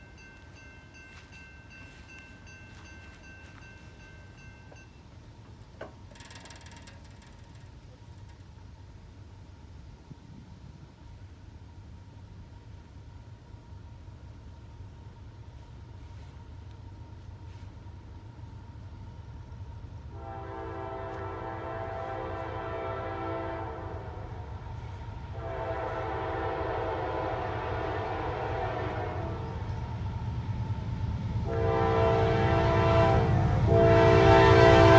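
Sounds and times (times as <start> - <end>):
railroad crossing bell ringing: 0.0 - 5.6, 18.2 - 34.9
train rumble: 0.0 - 34.9
fast rattling clicking: 5.8 - 8.5
locomotive air horn chord: 20.1 - 29.8, 31.4 - 34.9.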